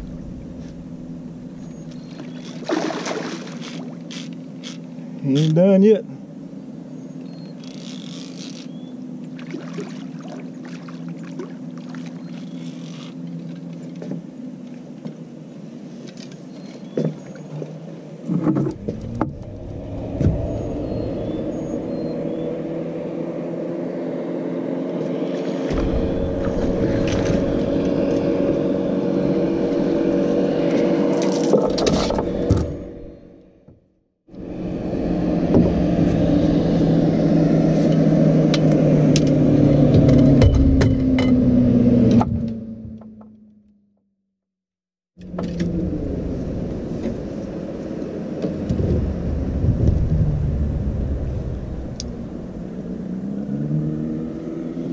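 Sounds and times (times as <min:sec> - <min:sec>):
engine running: 0:00.0 - 0:33.7, 0:34.3 - 0:43.8, 0:45.2 - 0:54.9
knocks and scrapes: 0:18.3 - 0:20.5, 0:25.5 - 0:28.6.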